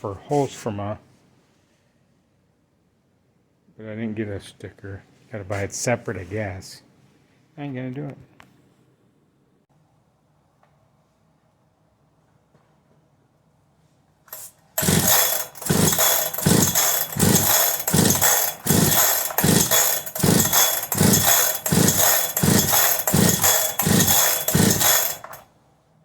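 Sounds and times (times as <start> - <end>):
chainsaw starter rope pulls: 14.3 - 25.4.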